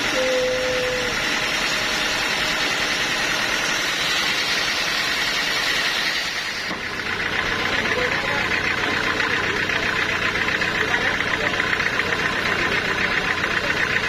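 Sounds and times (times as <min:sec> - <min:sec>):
sawmill machinery hiss: 0:00.0 - 0:09.6
engine hum: 0:00.0 - 0:14.0.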